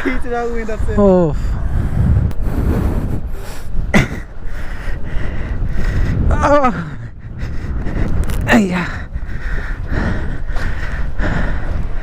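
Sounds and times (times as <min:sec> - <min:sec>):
steady low rumble: 0:00.0 - 0:12.0
men grunting with effort: 0:06.2 - 0:07.3, 0:08.4 - 0:09.2.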